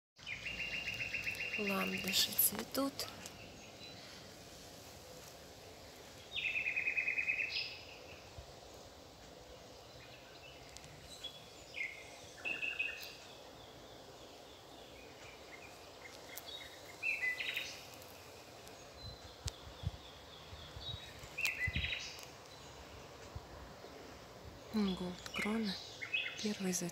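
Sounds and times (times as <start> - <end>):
songbird trilling: 0.2 - 3.9, 6.3 - 8.2, 9.9 - 18.1, 18.7 - 22.8, 24.7 - 26.9
outdoor background noise: 0.2 - 26.9.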